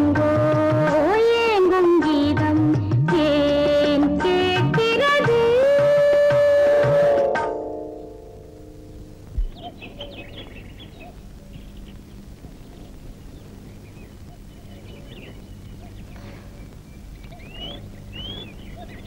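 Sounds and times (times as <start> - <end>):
steady low hum: 7.6 - 19.0
birds chirping: 7.9 - 19.0.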